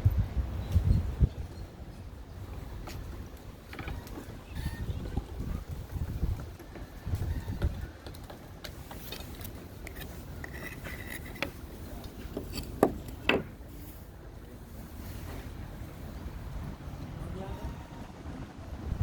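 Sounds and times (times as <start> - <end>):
tools clicking and rattling: 8.1 - 13.5.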